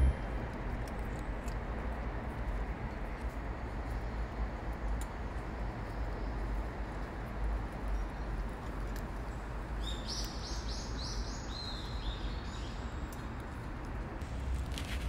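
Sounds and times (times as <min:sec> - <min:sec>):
low outdoor rumble: 0:00.0 - 0:06.3, 0:13.6 - 0:15.0.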